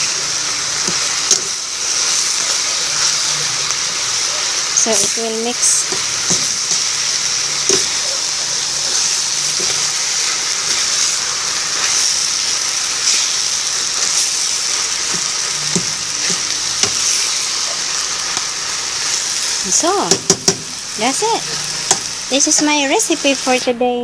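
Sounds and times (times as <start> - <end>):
food sizzling in a pan: 0.0 - 24.0
spatula knocking: 20.1 - 20.7.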